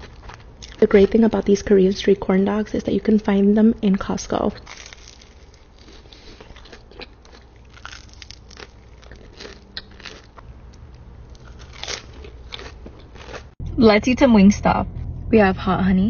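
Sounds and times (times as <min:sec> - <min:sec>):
crunchy food chewing: 0:00.0 - 0:01.4, 0:04.6 - 0:13.6.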